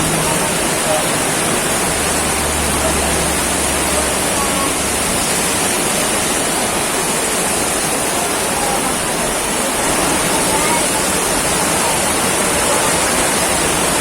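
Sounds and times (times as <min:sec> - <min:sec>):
heavy rain hiss: 0:00.0 - 0:14.0.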